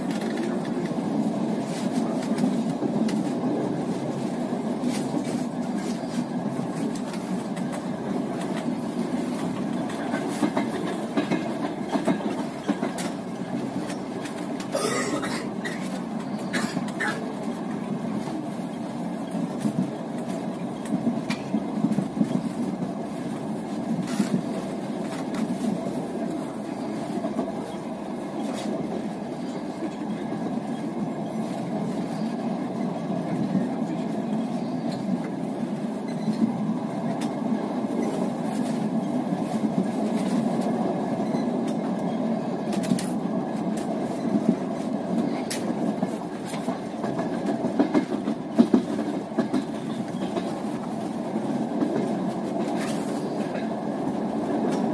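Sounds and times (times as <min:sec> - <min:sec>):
train wheels rumbling on track: 0:00.0 - 0:54.9.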